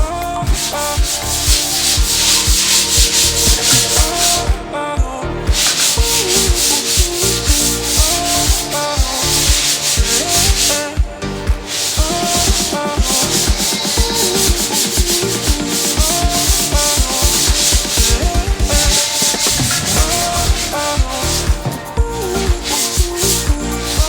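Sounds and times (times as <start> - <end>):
stepping melody: 0.0 - 24.0
rhythmic shaker hiss: 0.5 - 4.5, 5.5 - 11.0, 11.6 - 24.0
low drum thump: 16.0 - 23.2.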